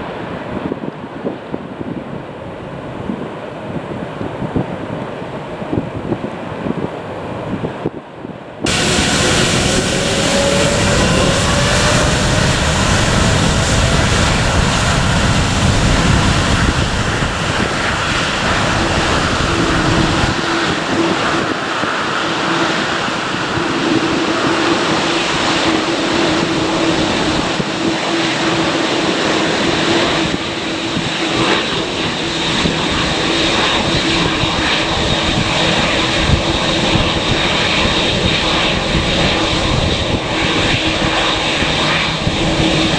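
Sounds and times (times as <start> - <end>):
airliner engines at takeoff: 0.0 - 42.9.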